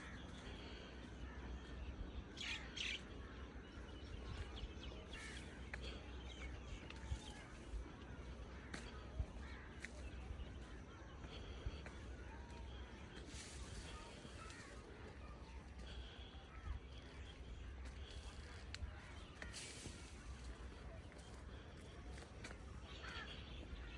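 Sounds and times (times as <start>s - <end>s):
small birds chirping: 0.0s - 23.9s
crows cawing: 23.0s - 23.9s.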